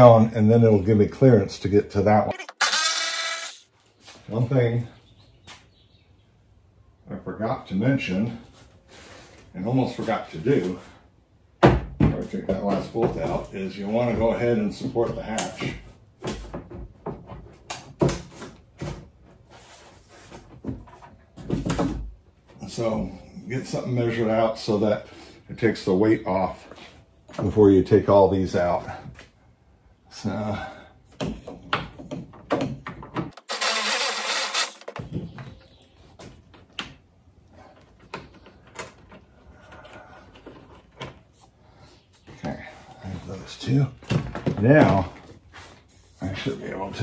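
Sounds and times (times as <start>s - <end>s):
power tool whirring: 2.3s - 3.7s, 33.4s - 35.0s.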